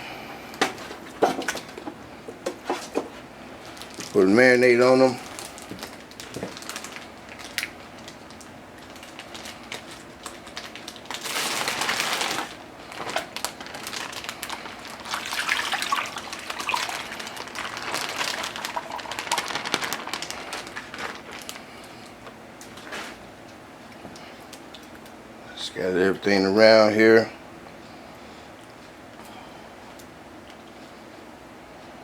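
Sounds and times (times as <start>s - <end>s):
small crackles and clicks: 5.3s - 15.2s, 16.2s - 25.2s
liquid pouring and splashing: 15.0s - 20.3s.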